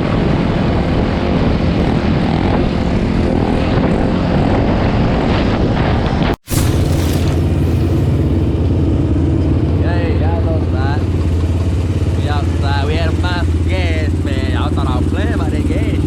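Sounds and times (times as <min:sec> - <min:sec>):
dirt bike engine running: 0:06.4 - 0:16.0.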